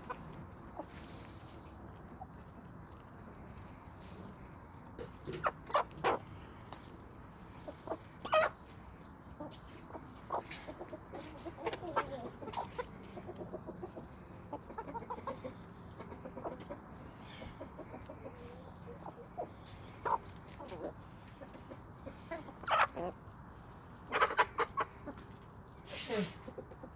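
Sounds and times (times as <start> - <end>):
chickens clucking: 0.0 - 26.9
sharp chicken calls: 5.0 - 6.9, 7.6 - 23.2, 24.0 - 25.3.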